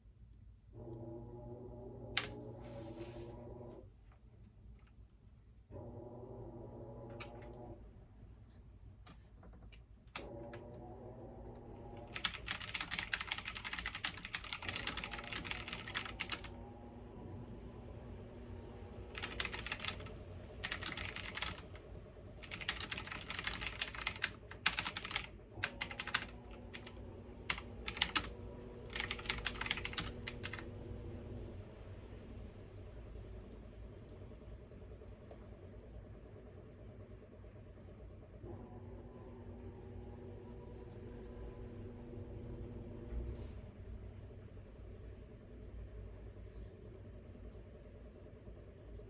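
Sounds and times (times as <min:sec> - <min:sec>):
steady low hum: 0:00.0 - 0:49.0
computer keyboard typing: 0:12.0 - 0:16.6, 0:19.1 - 0:21.8, 0:22.4 - 0:28.3, 0:28.9 - 0:30.7.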